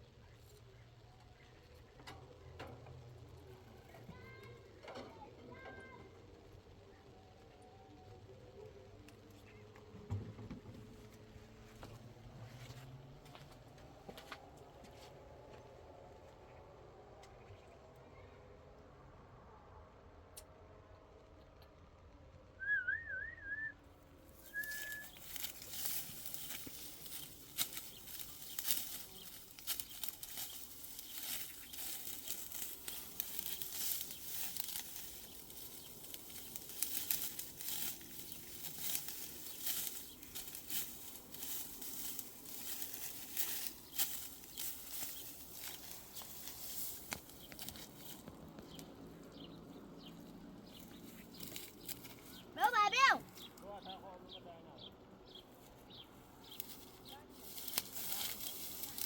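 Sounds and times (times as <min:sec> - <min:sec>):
dry wheat stalks rustling: 0:00.0 - 0:09.7, 0:24.1 - 0:54.0, 0:55.0 - 0:59.0
short warbling whistle: 0:22.6 - 0:23.8.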